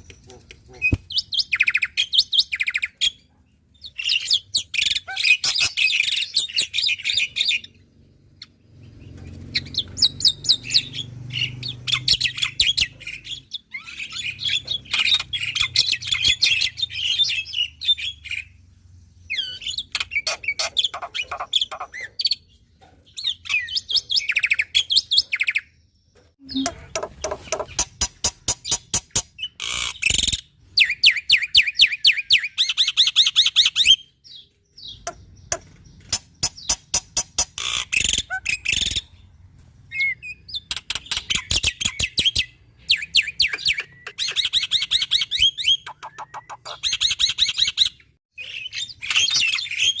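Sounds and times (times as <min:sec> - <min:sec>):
starling singing clicks and whistles: 0:39.9 - 0:50.0.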